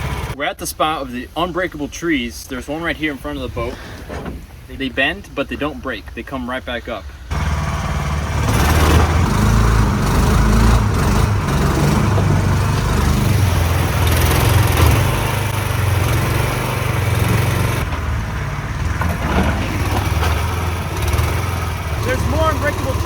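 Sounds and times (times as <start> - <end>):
boat motor running loudly: 0.0 - 0.4, 7.3 - 17.9, 19.8 - 23.0.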